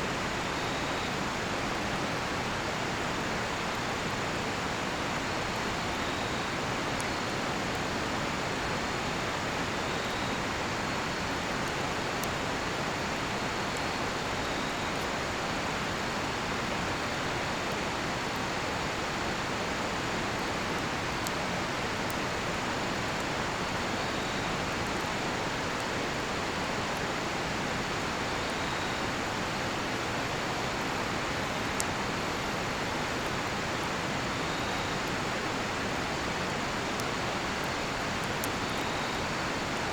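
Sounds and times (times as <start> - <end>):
river water flowing: 0.0 - 39.9
campfire crackling: 0.1 - 39.9
crickets chirping: 27.7 - 39.9.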